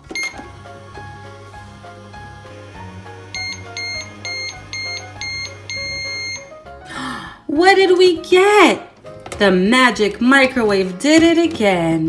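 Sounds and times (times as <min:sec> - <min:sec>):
toy microwave beeping: 0:00.0 - 0:00.6, 0:03.2 - 0:06.5
simple electronic melody: 0:00.0 - 0:06.9.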